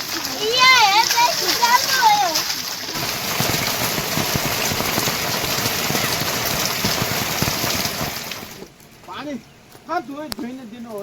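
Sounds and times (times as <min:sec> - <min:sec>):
heavy rain falling: 0:00.0 - 0:08.7.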